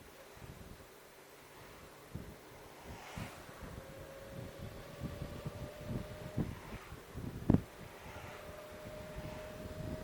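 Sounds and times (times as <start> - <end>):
motorcycle engine and road rumble: 0.0 - 10.0
wind buffeting on microphone: 1.6 - 10.0.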